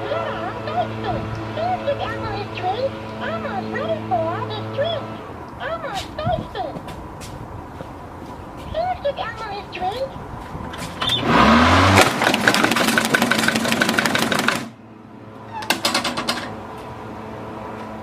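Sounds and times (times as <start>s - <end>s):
lawnmower running: 10.7s - 18.0s
mower blades shredding plastic: 10.8s - 14.8s.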